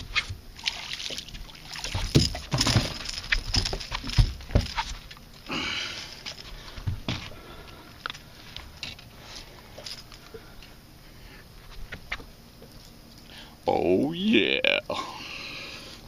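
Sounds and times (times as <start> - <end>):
water splash: 0.6 - 3.1.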